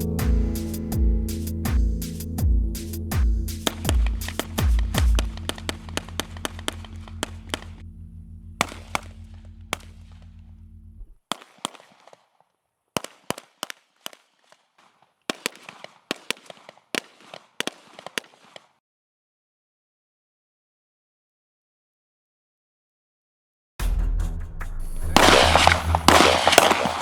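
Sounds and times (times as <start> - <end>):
background music with steady beat: 0.0 - 7.9, 23.8 - 27.0
rapid gunshots: 3.6 - 7.7, 13.0 - 18.7, 25.1 - 27.0.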